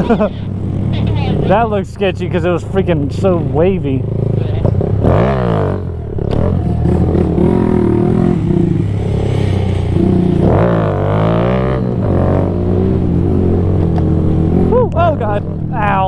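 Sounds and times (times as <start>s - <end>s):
mini bike engine revving: 4.0s - 15.7s.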